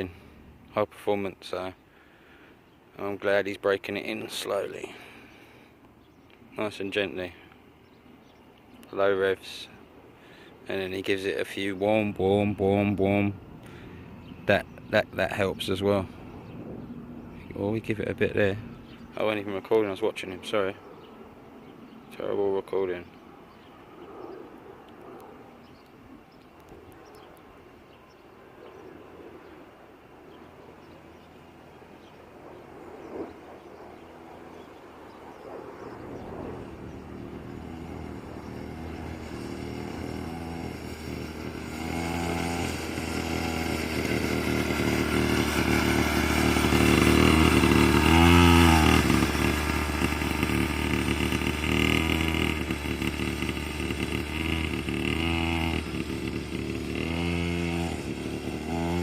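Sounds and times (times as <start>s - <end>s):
two-stroke quad bike engine: 10.7s - 16.6s, 36.2s - 59.0s.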